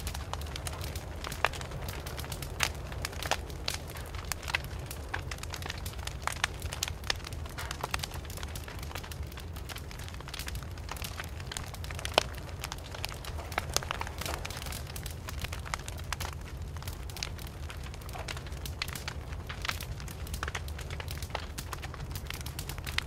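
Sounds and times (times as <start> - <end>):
sharp snaps and pops: 0.0 - 23.0
wood fire crackling: 0.0 - 23.0.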